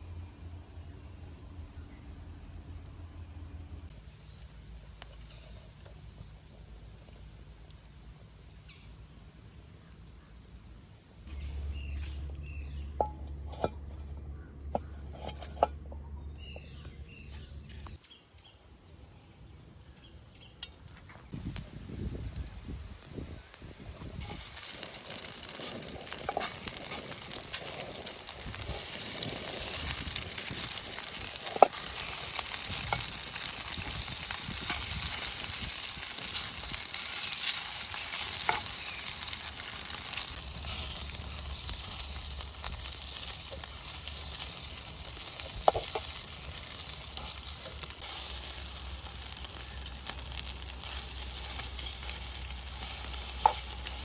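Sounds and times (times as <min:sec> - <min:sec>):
food sizzling in a pan: 0:24.2 - 0:54.0.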